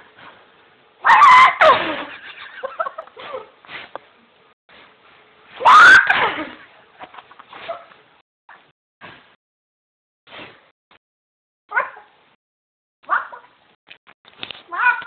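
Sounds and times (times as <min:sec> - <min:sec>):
dog yipping: 0:11.7 - 0:12.1, 0:13.1 - 0:13.5.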